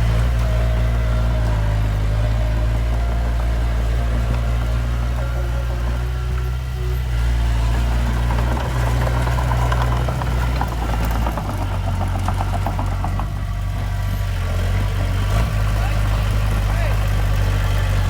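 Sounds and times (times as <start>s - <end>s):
diesel engine running: 0.0s - 18.0s
fast clicking clatter: 0.1s - 14.4s.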